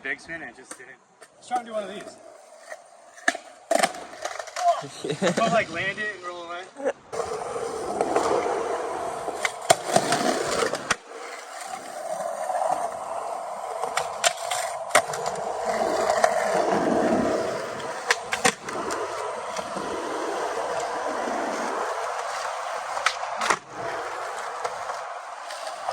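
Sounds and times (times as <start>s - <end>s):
skateboard wheels rolling on pavement: 0.4s - 25.9s
skateboard clacks: 7.2s - 25.9s.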